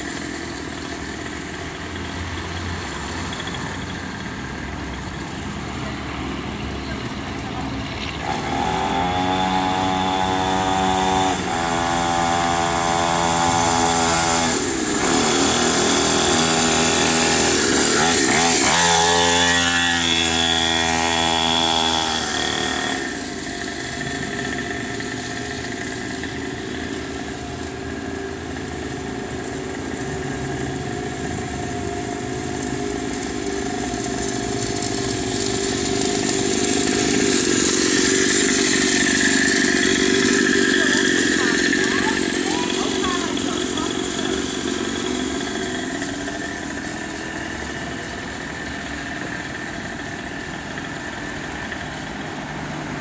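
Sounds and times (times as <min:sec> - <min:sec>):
small motorbike engine revving: 0:00.0 - 0:53.0.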